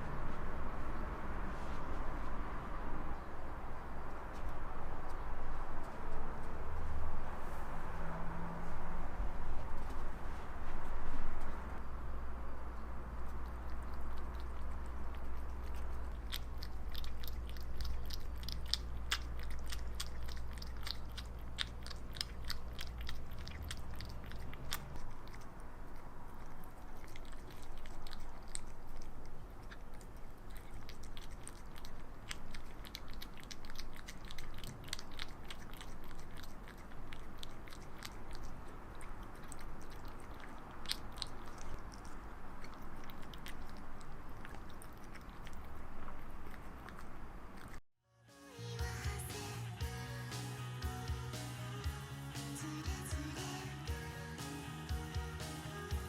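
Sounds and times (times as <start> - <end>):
low steady hum: 0.0 - 47.8
cat mouth clicks: 13.2 - 47.8.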